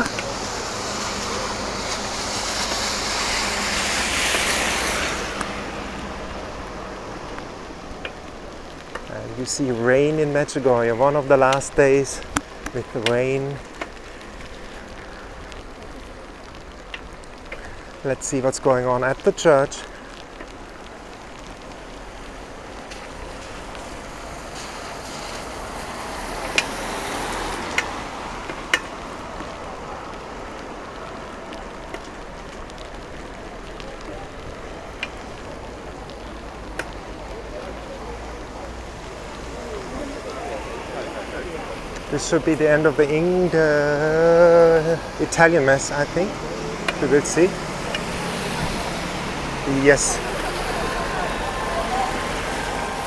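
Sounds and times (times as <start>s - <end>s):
car tyres hissing on wet road: 0.0s - 53.0s.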